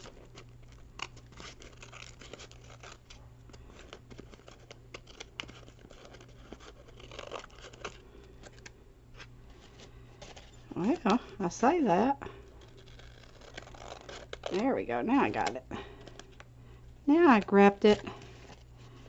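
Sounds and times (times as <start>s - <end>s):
scissors snipping paper: 0.0s - 8.6s, 12.5s - 16.5s.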